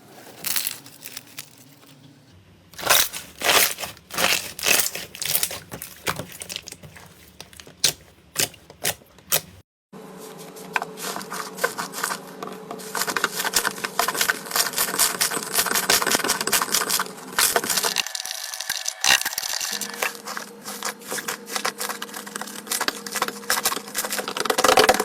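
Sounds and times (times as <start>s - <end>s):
slime crackling when squeezed: 2.8s - 9.5s.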